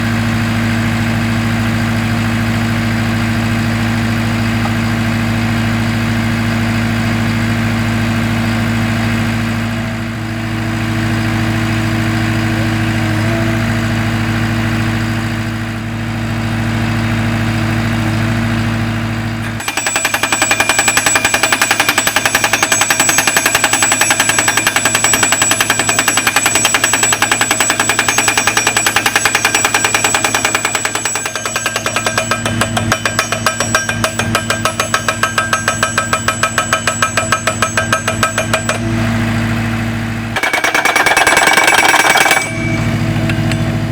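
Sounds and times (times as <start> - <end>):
skid steer engine running: 0.0 - 43.9
hydraulic post driver hammering: 19.4 - 39.1, 40.3 - 43.7.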